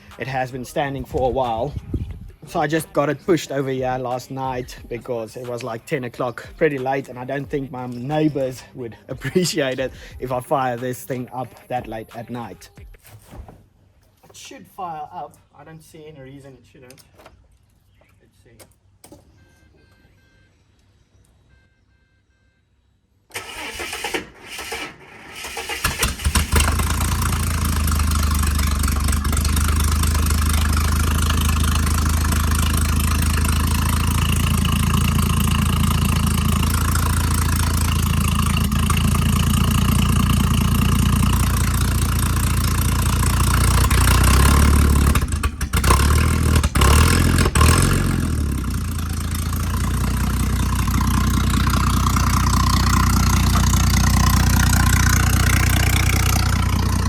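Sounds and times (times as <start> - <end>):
car engine cranking: 23.3 - 57.0
car engine idling: 25.5 - 57.0.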